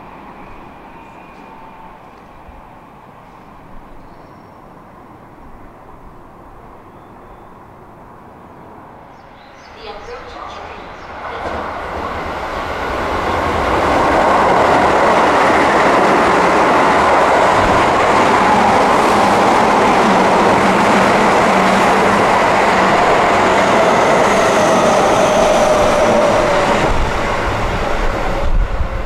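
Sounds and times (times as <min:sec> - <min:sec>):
train wheels on rail: 0:09.6 - 0:29.0.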